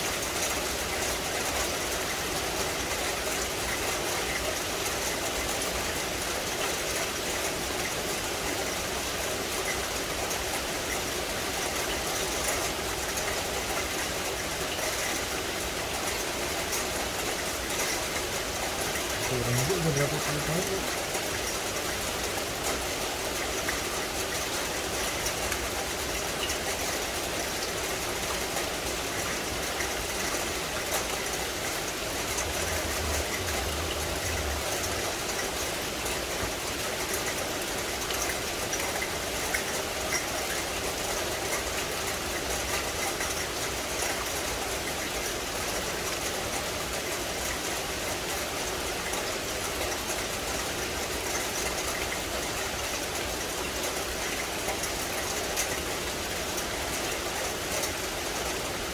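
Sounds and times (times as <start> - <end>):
rain falling on foliage: 0.0 - 58.9
low rumble: 32.1 - 35.6.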